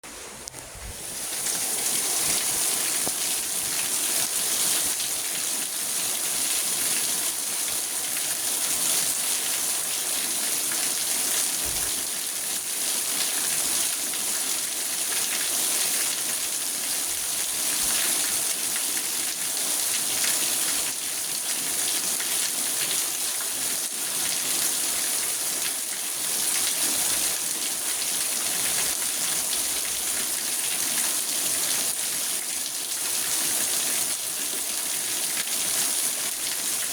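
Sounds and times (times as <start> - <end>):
rain on a car roof: 0.5 - 22.8.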